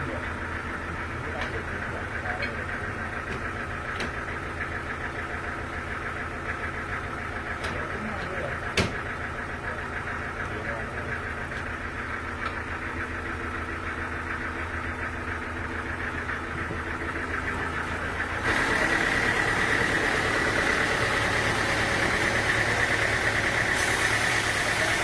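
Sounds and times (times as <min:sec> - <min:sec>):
engine running: 0:00.0 - 0:25.0
hiss with bright whine: 0:18.5 - 0:25.0.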